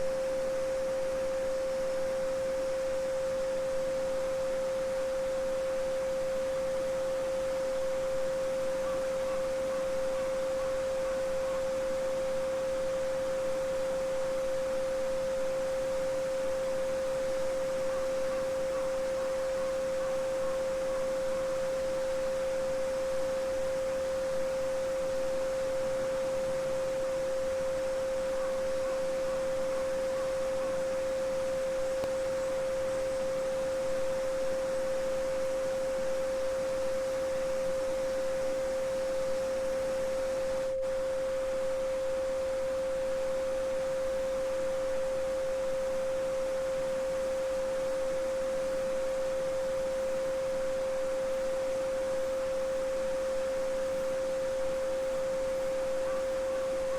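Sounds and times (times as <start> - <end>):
steady sine tone: 0.0 - 56.9.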